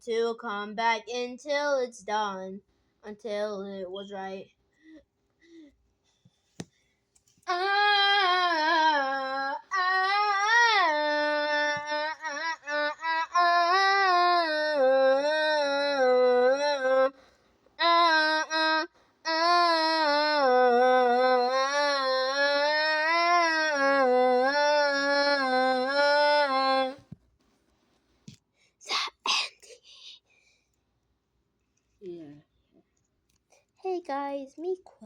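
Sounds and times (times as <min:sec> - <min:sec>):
high voice singing wordless notes: 0:07.5 - 0:27.1.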